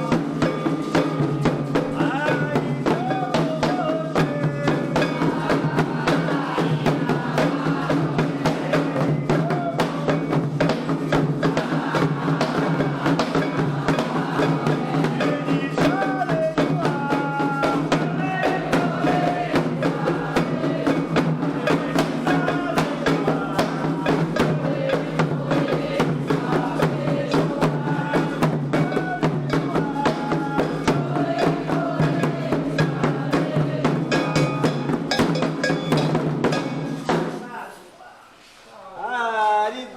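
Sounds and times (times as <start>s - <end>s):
struck bell percussion: 0.0s - 37.4s
hand drums beaten fast: 0.0s - 37.5s
voices singing: 0.0s - 39.9s.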